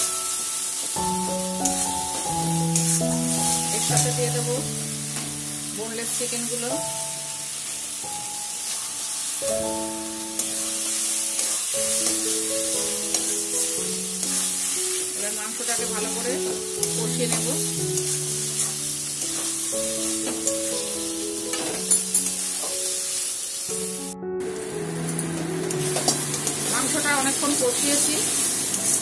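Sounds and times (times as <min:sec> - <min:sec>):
chicken sizzling in a pan: 0:00.0 - 0:29.0
soft background music: 0:00.0 - 0:29.0.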